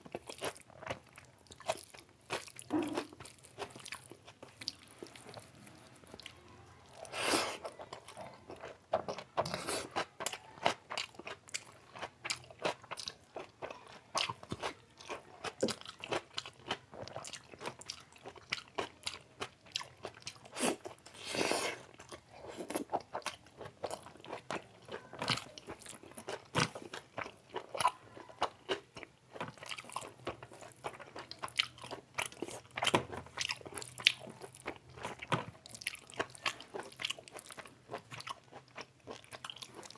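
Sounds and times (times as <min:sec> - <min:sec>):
close-miked chewing and biting: 0:00.0 - 0:39.9.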